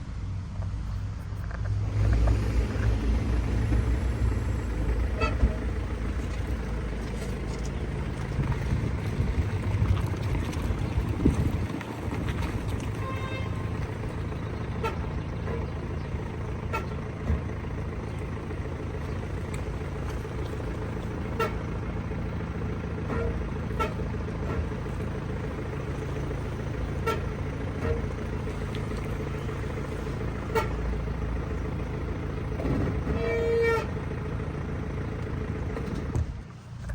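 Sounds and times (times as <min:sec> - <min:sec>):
car engine and road rumble: 0:00.0 - 0:36.9
loud brake squeal: 0:05.0 - 0:05.7, 0:33.0 - 0:34.0.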